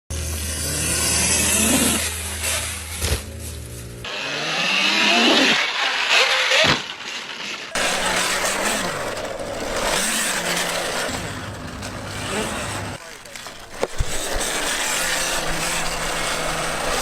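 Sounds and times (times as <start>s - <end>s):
motorcycle engine revving: 0.1s - 17.0s
road noise: 0.1s - 17.0s.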